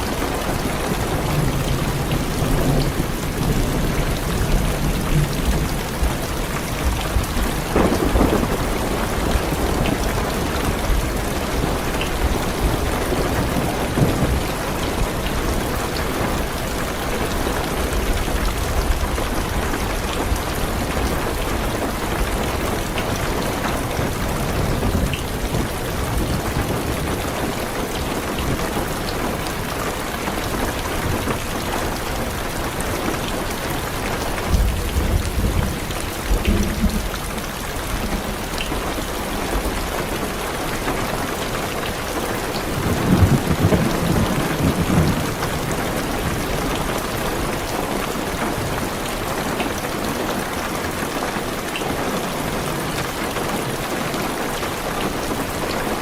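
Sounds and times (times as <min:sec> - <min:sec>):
heavy rain on a car roof: 0:00.0 - 0:56.0
low thunder rumbling: 0:00.7 - 0:27.3, 0:33.7 - 0:40.2, 0:42.6 - 0:49.0.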